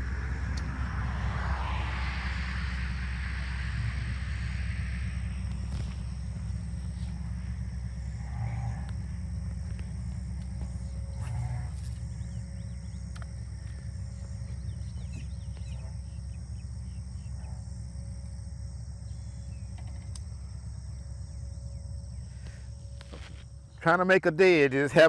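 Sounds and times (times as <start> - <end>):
low rumble: 0.0 - 23.9
high-pitched insect drone: 0.0 - 25.0
faint bird chirps: 5.1 - 18.0.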